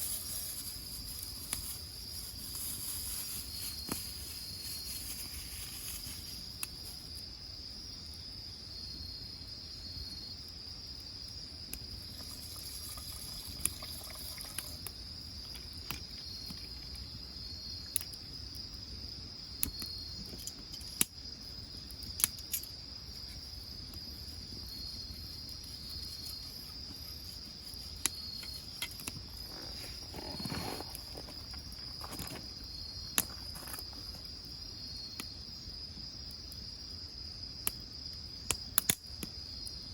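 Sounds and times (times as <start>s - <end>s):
crickets chirping: 0.0s - 39.9s
wood fire crackling and popping: 25.6s - 34.4s, 37.6s - 39.4s.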